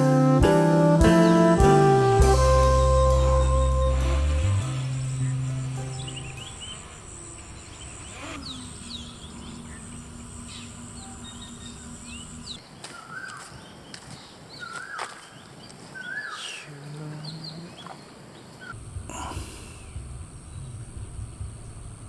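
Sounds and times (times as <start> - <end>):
background music: 0.0 - 6.6
high insect drone: 1.1 - 12.6, 18.7 - 22.0
birds chirping: 2.0 - 18.8.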